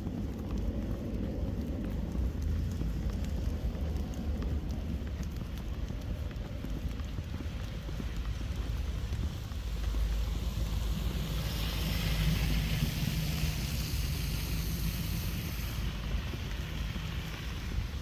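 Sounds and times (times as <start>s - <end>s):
wind buffeting microphone: 0.0s - 18.0s
rushing hiss: 10.3s - 17.8s.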